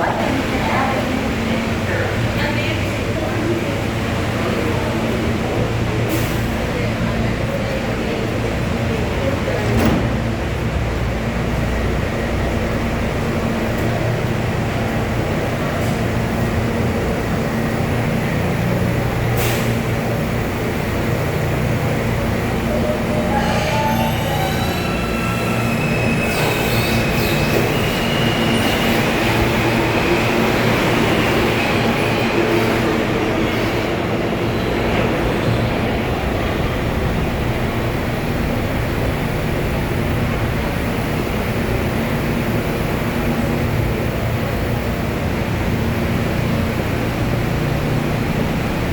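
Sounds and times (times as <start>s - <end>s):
subway train rumbling: 0.0s - 48.9s.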